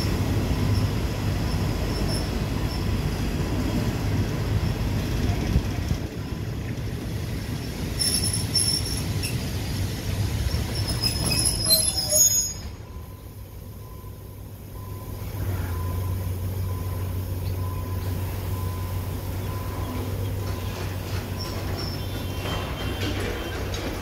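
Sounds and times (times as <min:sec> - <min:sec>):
train brakes squealing: 0:00.0 - 0:03.2, 0:07.6 - 0:09.7, 0:10.4 - 0:13.4, 0:16.8 - 0:24.0
diesel locomotive engine hum: 0:00.0 - 0:24.0
train carriages rumbling: 0:00.0 - 0:24.0.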